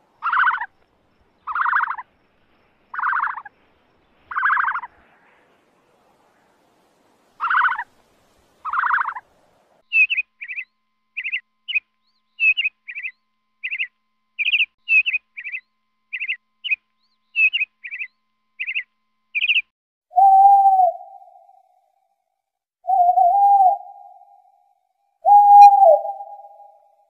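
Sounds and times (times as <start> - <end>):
bird calls and chirps: 0.1 - 2.2, 2.9 - 5.6, 7.4 - 8.0, 8.6 - 21.6.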